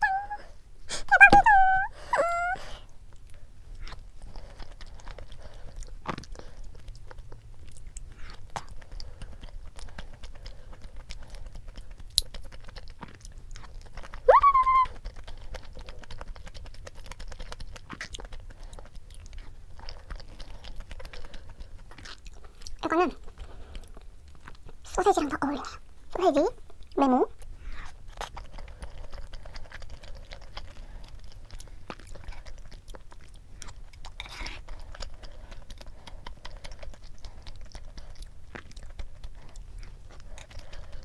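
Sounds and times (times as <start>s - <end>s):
person humming: 1.0s - 2.8s
wet chewing: 2.4s - 41.0s.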